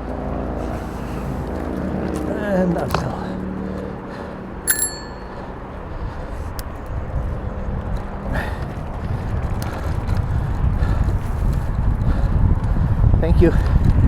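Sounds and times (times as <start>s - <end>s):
wind on microphone: 5.8s - 14.0s.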